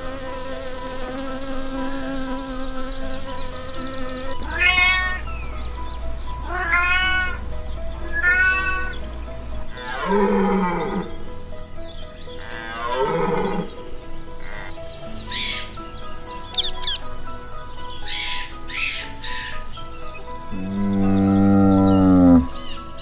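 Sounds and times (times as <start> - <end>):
honeybee buzzing: 0.0 - 4.4
soft background music: 0.0 - 23.0
cat meowing: 4.4 - 5.2, 6.5 - 7.4, 8.2 - 8.9
deep animal call: 20.5 - 22.6.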